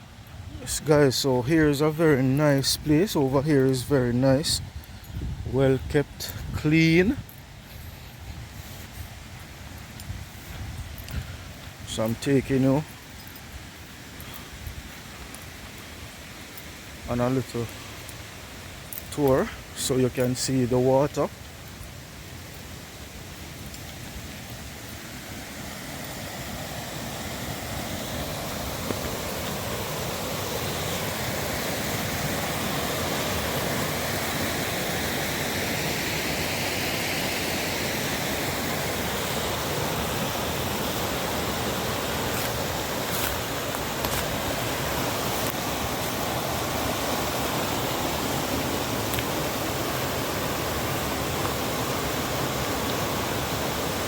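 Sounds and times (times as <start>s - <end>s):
water rushing down a cascade: 11.0s - 54.0s.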